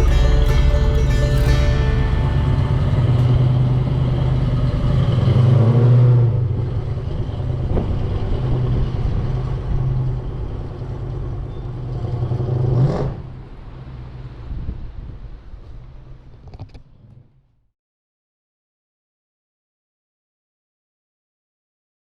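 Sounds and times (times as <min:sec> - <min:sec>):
car engine revving: 0:00.0 - 0:14.5.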